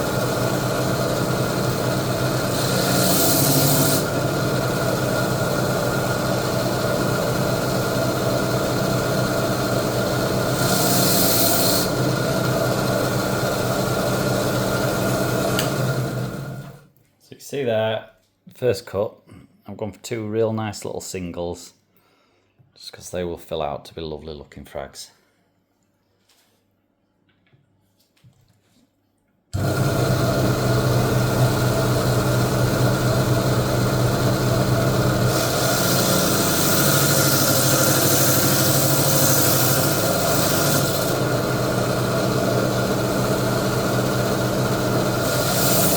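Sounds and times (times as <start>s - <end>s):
electric saw cutting coral: 0.0s - 16.8s, 29.6s - 45.9s.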